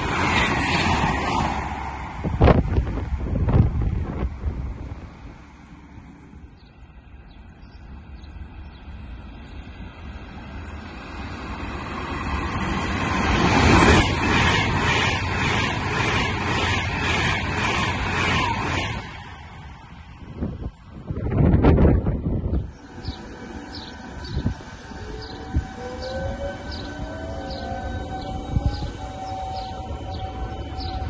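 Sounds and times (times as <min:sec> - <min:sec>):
high-speed train passing: 0:00.0 - 0:31.0
train wheels beating rhythmically: 0:07.9 - 0:20.7.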